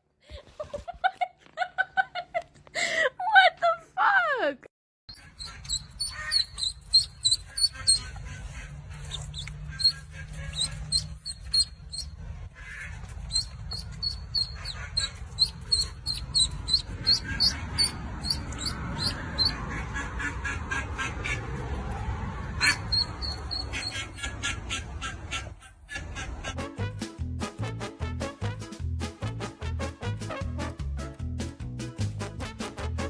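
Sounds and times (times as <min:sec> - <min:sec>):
ducklings peeping: 0:05.1 - 0:21.4, 0:22.6 - 0:26.3.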